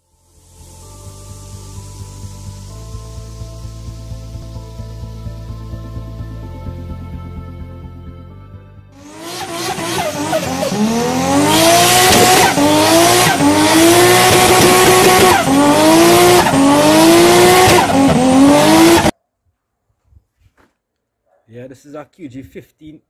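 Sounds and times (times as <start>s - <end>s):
car engine accelerating: 0.4s - 7.8s, 8.9s - 19.1s.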